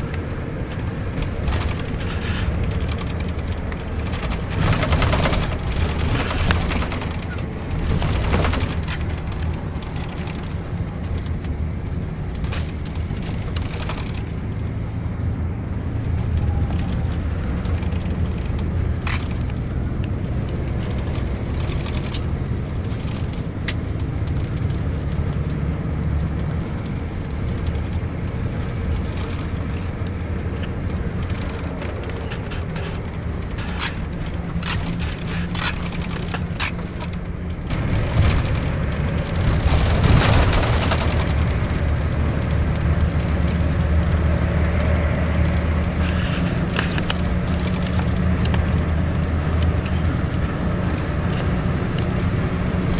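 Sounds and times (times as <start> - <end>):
sharp knocks and rattles: 0.0 - 14.8, 16.1 - 52.9
bus engine and road drone: 0.0 - 52.9.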